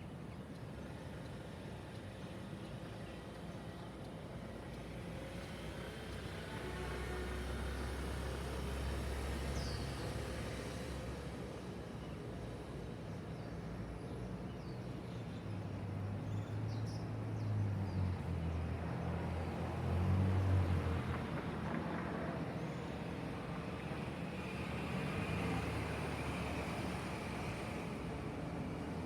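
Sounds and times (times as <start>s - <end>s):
steady traffic hum: 0.0s - 29.0s
vehicle rumbling past: 17.5s - 27.9s.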